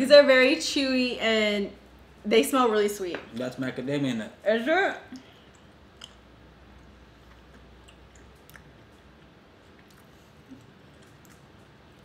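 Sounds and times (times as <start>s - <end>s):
soft mouth clicks: 5.1s - 6.2s, 7.2s - 11.5s
faint chewing of nut bar: 6.8s - 12.0s.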